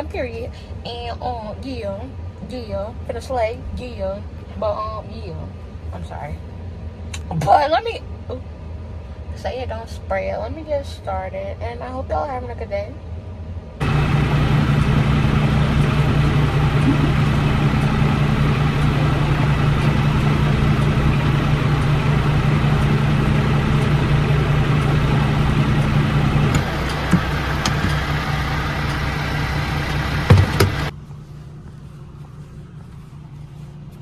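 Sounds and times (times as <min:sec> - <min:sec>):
diesel truck engine running: 0:13.8 - 0:34.0.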